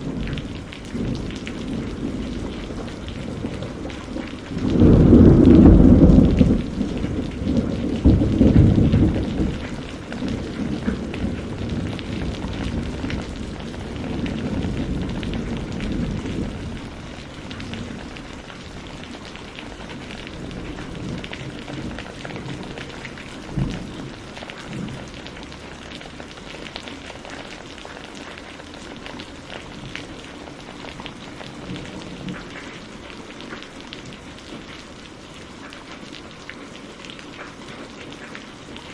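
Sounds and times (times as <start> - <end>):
thunder rumbling: 0.0 - 27.2
steady rain: 0.0 - 38.9.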